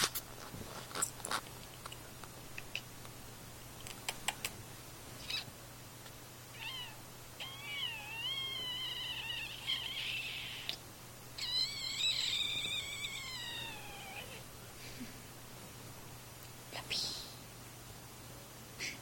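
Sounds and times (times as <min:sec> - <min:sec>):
cat meowing: 0:06.5 - 0:10.8, 0:11.4 - 0:14.4.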